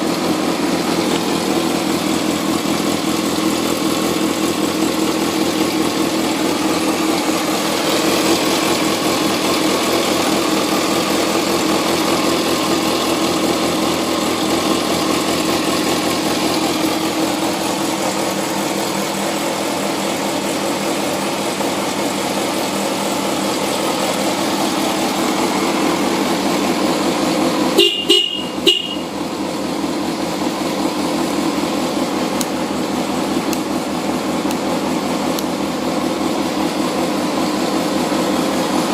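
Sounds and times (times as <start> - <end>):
motorcycle engine idling: 0.0 - 38.9
motorcycle horn beeps: 27.6 - 29.3.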